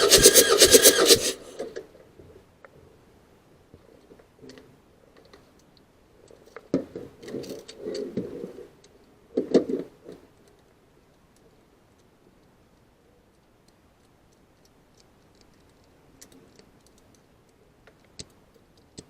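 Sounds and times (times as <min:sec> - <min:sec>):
small hard parts clicking and rattling: 0:00.0 - 0:01.5.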